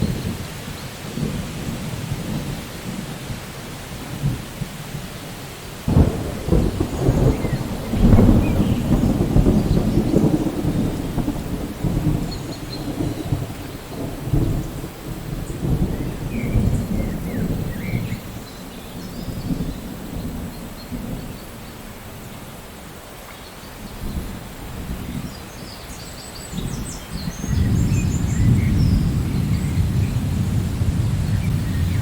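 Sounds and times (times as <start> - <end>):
steady rain: 0.0 - 32.0
thunder rolling: 5.8 - 21.6, 26.6 - 32.0.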